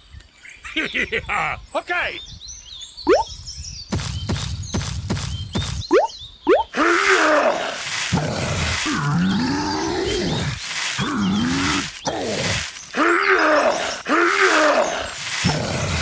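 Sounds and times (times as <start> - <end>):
deep straining monster groan: 6.8 - 16.0.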